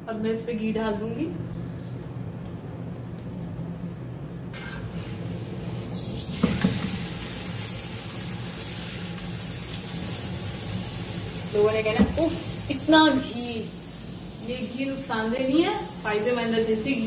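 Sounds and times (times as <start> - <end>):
ghee sizzling on a hot pan: 4.6 - 17.0.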